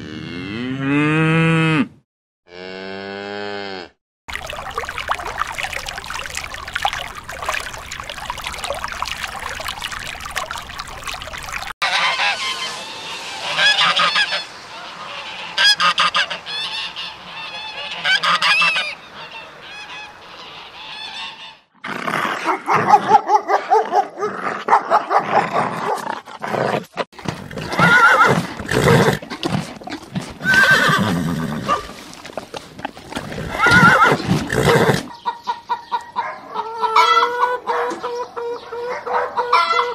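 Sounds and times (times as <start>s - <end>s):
water splashing: 4.3s - 12.6s, 27.2s - 35.1s
geese honking: 11.8s - 21.6s.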